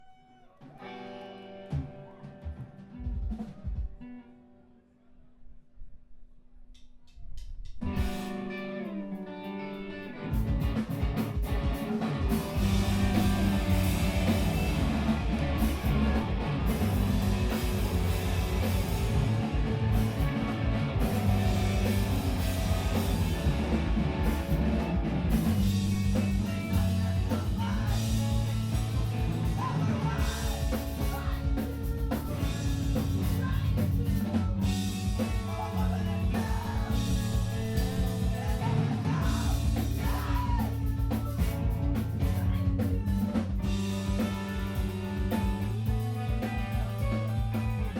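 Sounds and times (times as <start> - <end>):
screamo band playing live: 0.0 - 4.2, 7.8 - 47.9
electric guitar: 0.0 - 4.9, 7.7 - 47.9
vocals: 11.6 - 47.9.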